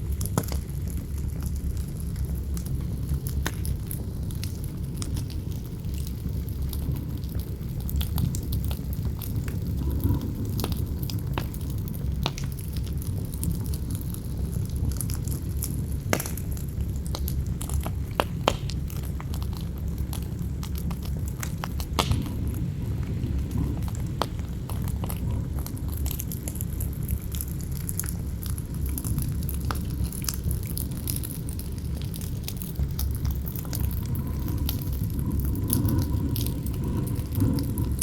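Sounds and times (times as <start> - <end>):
campfire crackling and popping: 0.0 - 38.0
low rush of wind: 0.0 - 38.0.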